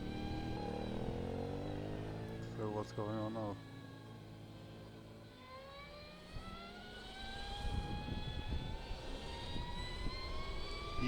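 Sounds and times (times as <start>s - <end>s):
electric motorcycle motor whine: 0.0s - 11.0s
wind rush on microphone: 7.5s - 10.3s.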